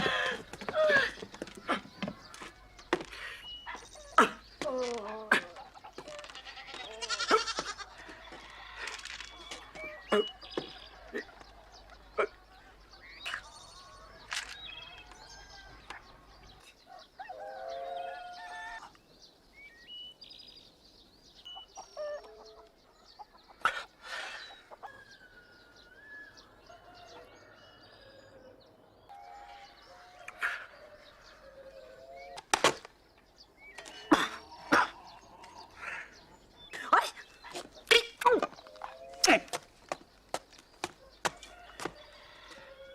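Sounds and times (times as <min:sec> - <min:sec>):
fowl clucking and calling: 0:21.5 - 0:25.3.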